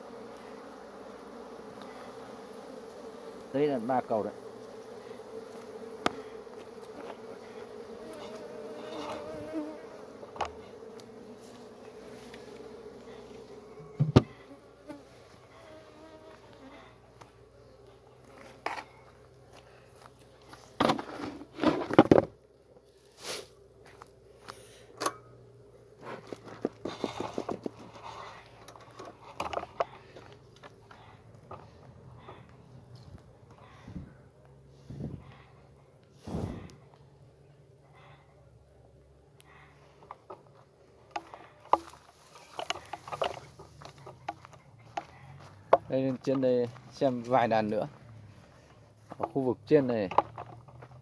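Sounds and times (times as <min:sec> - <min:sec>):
bees buzzing: 0:00.0 - 0:18.7
wooden hive parts clicking and knocking: 0:28.6 - 0:32.5, 0:40.0 - 0:46.5, 0:49.1 - 0:51.0.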